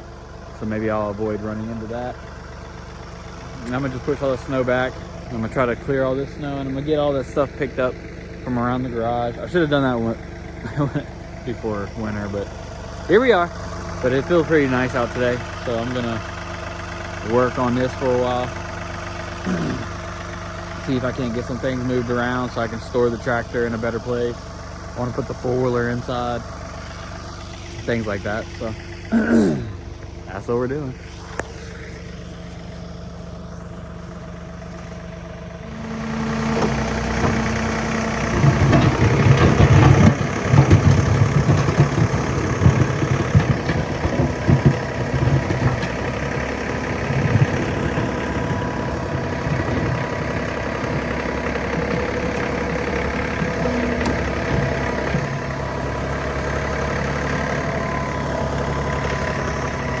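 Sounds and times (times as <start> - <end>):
tractor diesel engine running: 0.0 - 60.0.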